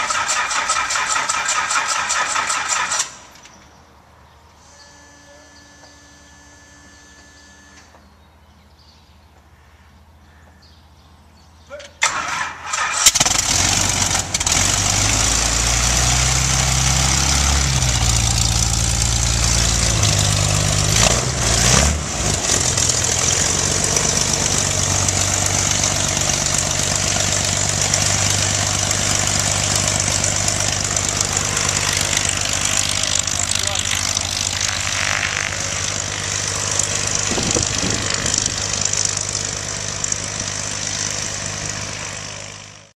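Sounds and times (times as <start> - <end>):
propeller wind rushing: 13.1 - 42.6
biplane radial engine running: 13.1 - 42.9.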